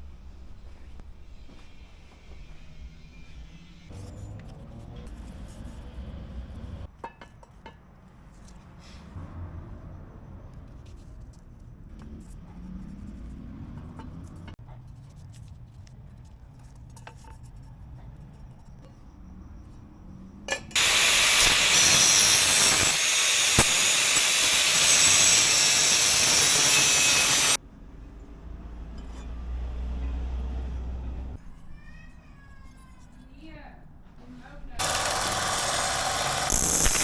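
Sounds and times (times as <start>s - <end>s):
loud steady hiss of pressurised air: 20.8s - 27.6s.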